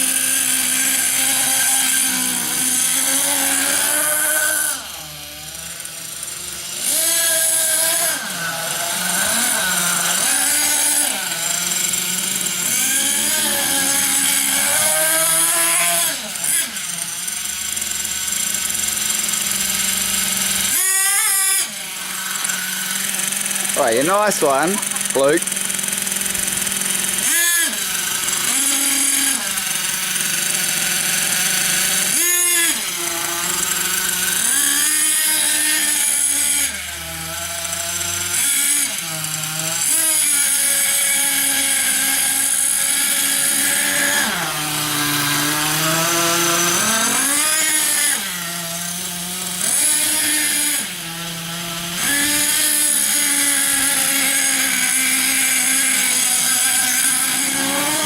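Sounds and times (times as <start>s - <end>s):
small nitro engine revving: 0.0s - 58.0s.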